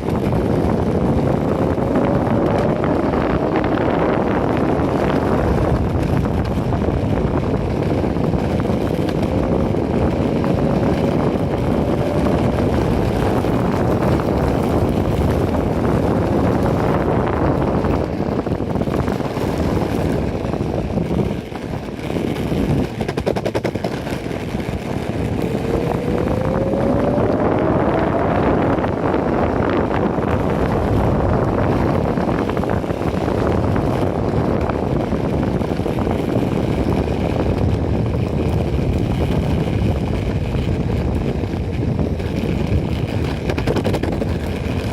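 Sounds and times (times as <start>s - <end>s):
skateboard wheels rumbling on pavement: 0.0s - 44.9s
wind on microphone: 0.0s - 44.9s
electric motor whine: 25.0s - 31.0s.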